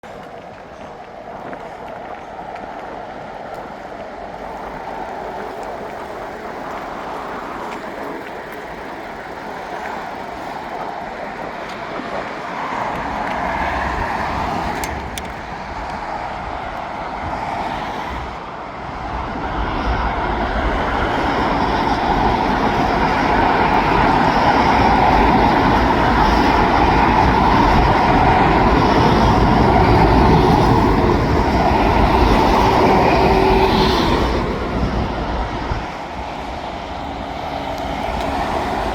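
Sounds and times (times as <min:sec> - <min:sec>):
heavy vehicle engines rumbling: 0:20.3 - 0:38.9.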